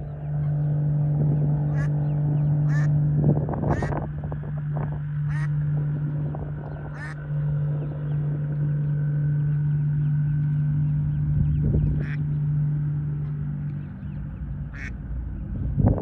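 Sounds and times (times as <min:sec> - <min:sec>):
ducks calling: 0:00.0 - 0:03.0, 0:03.6 - 0:04.1, 0:05.2 - 0:08.9, 0:11.6 - 0:15.1
steady low hum: 0:00.0 - 0:16.0.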